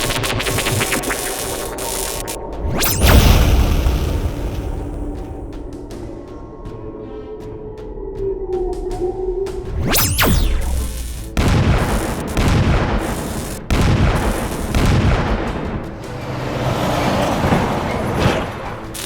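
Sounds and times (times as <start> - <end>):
background music: 0.0 - 19.0
cartoon booms with rumble: 2.6 - 5.9, 9.8 - 15.8.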